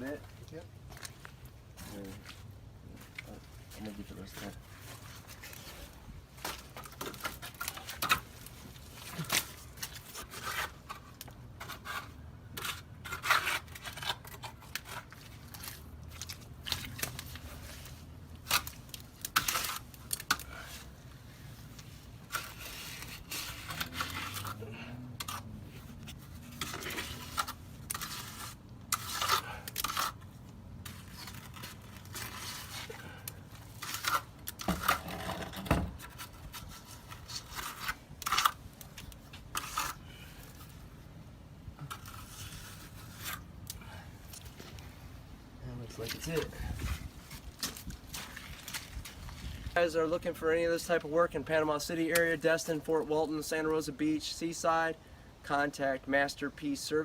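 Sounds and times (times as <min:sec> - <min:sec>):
scraping and rustling: 0:01.8 - 0:41.0.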